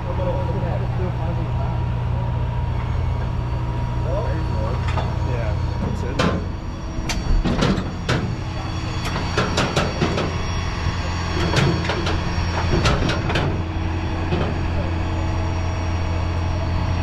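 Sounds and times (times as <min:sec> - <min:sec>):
metallic clanks and knocks: 0:05.8 - 0:06.5, 0:07.1 - 0:08.4, 0:09.0 - 0:10.4, 0:11.4 - 0:13.6, 0:14.3 - 0:14.6.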